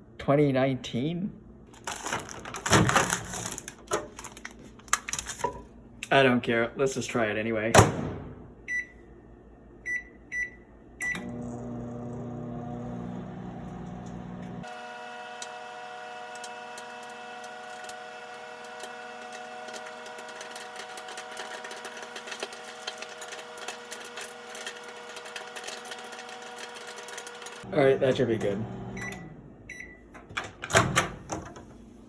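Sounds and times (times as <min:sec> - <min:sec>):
microwave oven humming: 0:08.2 - 0:32.0
microwave keypad beeps: 0:08.7 - 0:09.0, 0:09.8 - 0:11.4, 0:29.0 - 0:30.1
popcorn popping: 0:16.3 - 0:27.5.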